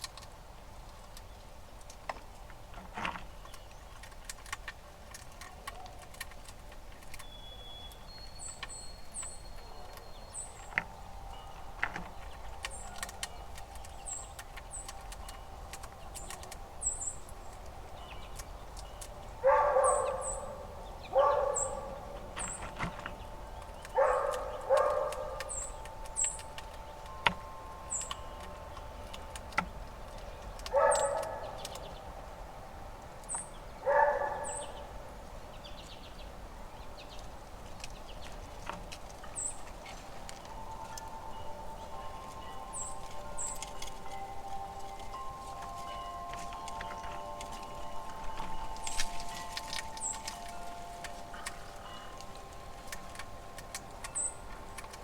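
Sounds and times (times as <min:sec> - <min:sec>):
small birds chirping: 0:00.0 - 0:55.0
dog barking: 0:19.4 - 0:22.5, 0:23.9 - 0:25.6, 0:30.7 - 0:31.6, 0:33.8 - 0:34.9.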